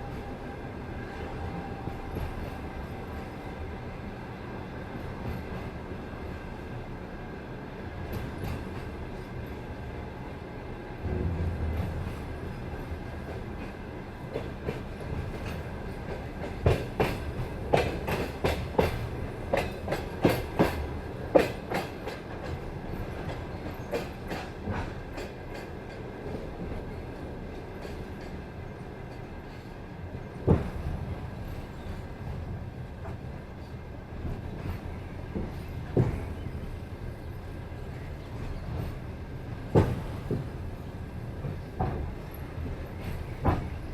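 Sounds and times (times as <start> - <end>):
train carriage rumbling: 0.0 - 43.9
wheels clacking over rail joints: 11.3 - 28.4.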